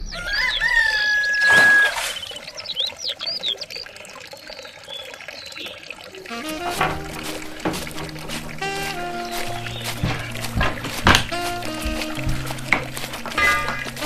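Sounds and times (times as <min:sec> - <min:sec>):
water running and splashing: 0:00.2 - 0:14.0
music: 0:06.3 - 0:14.0.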